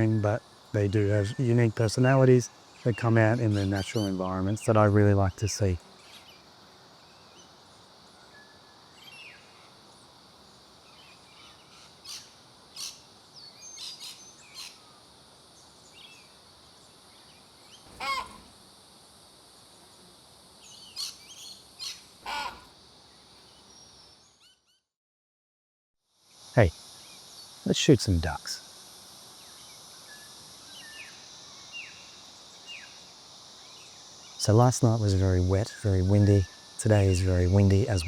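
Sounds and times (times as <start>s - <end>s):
birds chirping and calling: 0.0s - 5.0s, 34.4s - 38.0s
steady high-pitched hiss: 0.0s - 24.6s, 26.0s - 38.0s.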